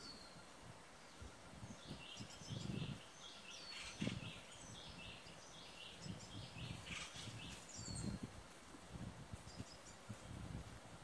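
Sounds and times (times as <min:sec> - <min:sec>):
birds calling: 0:01.8 - 0:08.2.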